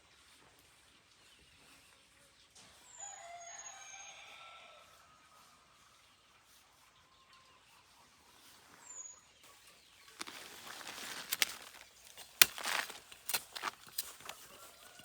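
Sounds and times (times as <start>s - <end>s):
rustling: 9.5s - 15.0s.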